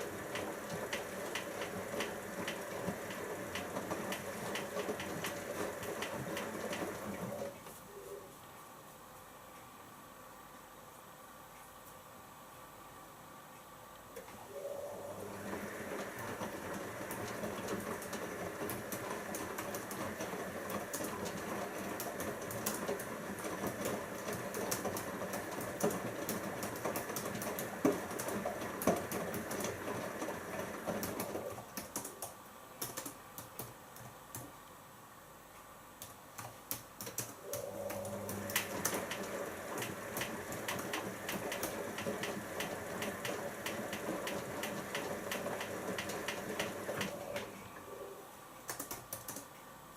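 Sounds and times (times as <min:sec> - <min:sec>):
washing machine drum turning: 0:37.6 - 0:47.5.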